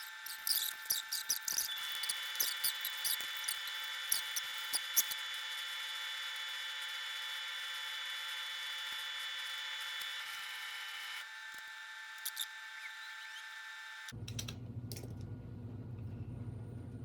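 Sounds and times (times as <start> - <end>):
small tools clicking: 0.0 - 5.2, 12.2 - 12.5, 14.2 - 15.2
small electric motor whirring: 0.0 - 14.2.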